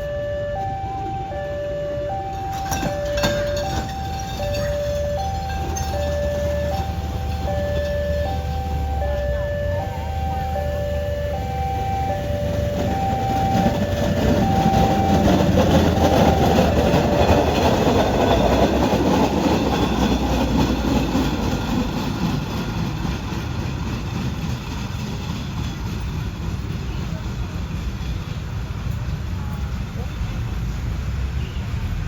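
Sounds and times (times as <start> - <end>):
two-tone crossing warning alarm: 0.0 - 21.6
train wheels clattering on rails: 2.2 - 9.2, 12.2 - 31.3.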